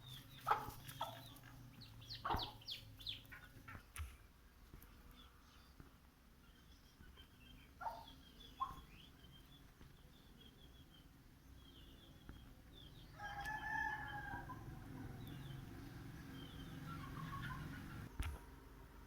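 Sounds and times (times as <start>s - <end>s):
small birds chirping: 0.0s - 18.7s
rooster crowing: 13.1s - 15.2s.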